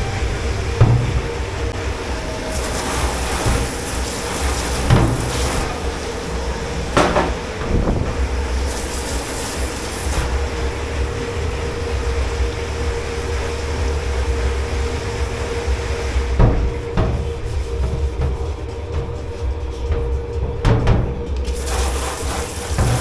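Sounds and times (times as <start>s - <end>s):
crockery clattering: 0.0s - 9.2s
kitchen machinery droning: 0.0s - 23.0s.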